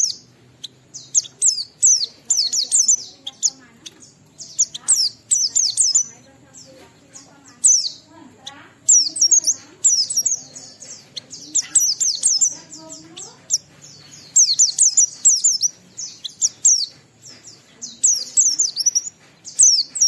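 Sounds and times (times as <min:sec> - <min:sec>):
bird twittering chirps: 0:00.0 - 0:20.0.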